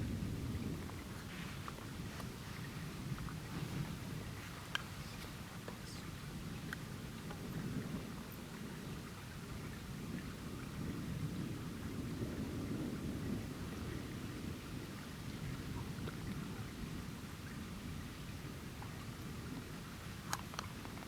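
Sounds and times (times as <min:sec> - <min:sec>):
rain hiss: 0:00.0 - 0:21.0
thunder rumbling: 0:08.6 - 0:17.1.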